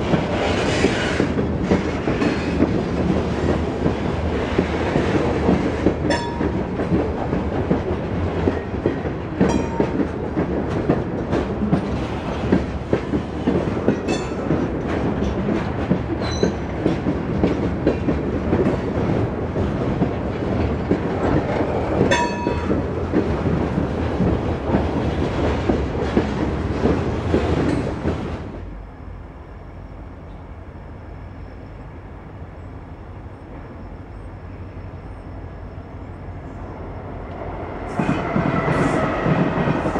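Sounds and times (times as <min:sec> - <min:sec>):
freight train cars rolling: 0:00.0 - 0:39.9
wheels clicking over rail joints: 0:00.1 - 0:28.3
train wheel squeals: 0:00.3 - 0:02.7, 0:16.2 - 0:16.9, 0:32.6 - 0:36.7, 0:37.4 - 0:39.9.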